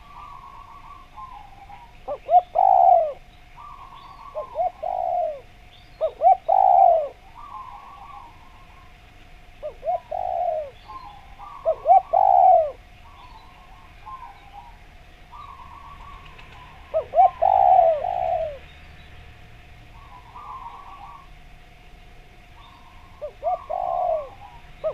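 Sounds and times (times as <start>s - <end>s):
faint dove cooing: 0.0s - 9.0s, 9.6s - 18.7s, 19.9s - 21.4s, 22.6s - 24.9s
dove cooing: 0.0s - 18.7s, 19.9s - 21.5s, 22.6s - 24.9s
faint steady hum: 0.0s - 24.9s.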